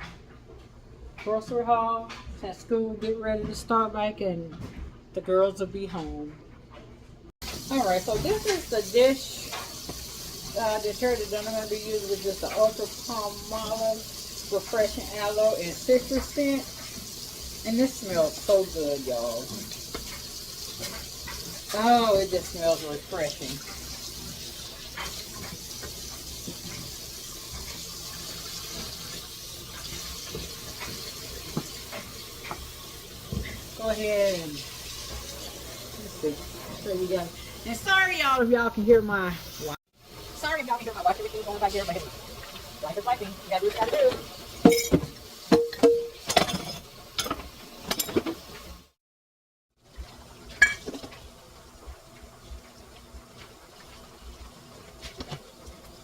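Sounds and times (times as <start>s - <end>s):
faucet running into sink: 7.4s - 37.9s
washing machine running: 7.4s - 48.9s, 49.8s - 56.0s
containers clinking and clattering: 43.7s - 48.5s, 50.5s - 51.2s.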